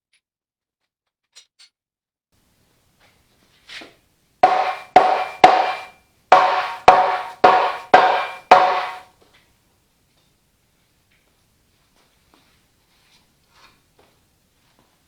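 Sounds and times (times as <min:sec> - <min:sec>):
hammer blows on steel: 0:04.4 - 0:09.0.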